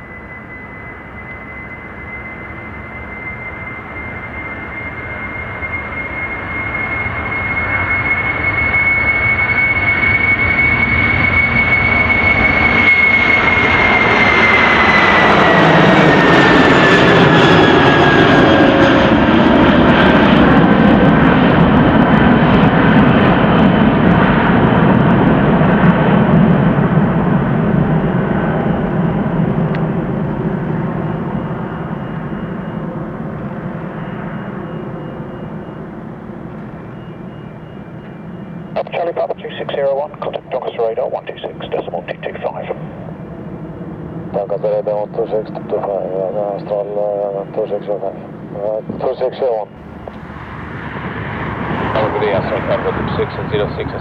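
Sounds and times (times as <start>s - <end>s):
high engine whine: 0.0s - 54.0s
jet airliner taking off: 0.0s - 54.0s.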